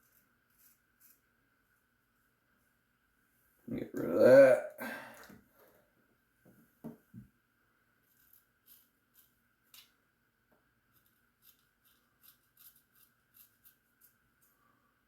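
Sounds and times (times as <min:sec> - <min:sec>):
razor scraping stubble: 0:11.0 - 0:14.2.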